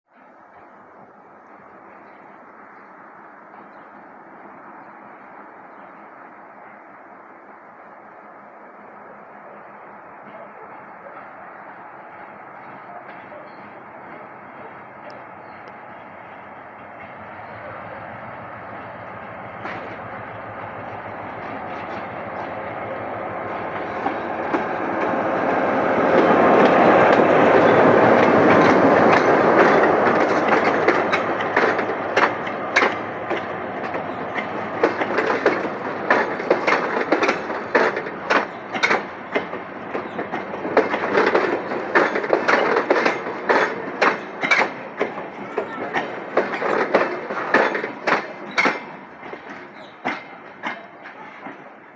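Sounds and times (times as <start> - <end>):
diesel locomotive passing: 0.1 - 51.9
wheels clacking over rail joints: 11.7 - 51.9.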